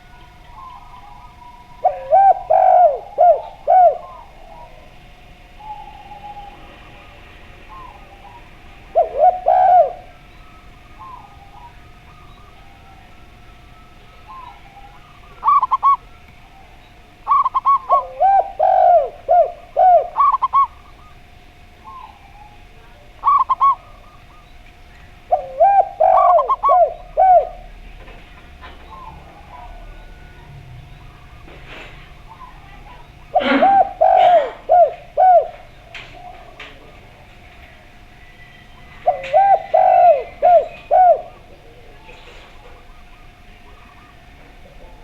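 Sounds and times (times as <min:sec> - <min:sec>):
faint steady tone: 0:00.0 - 0:28.1
doves cooing: 0:00.0 - 0:45.0.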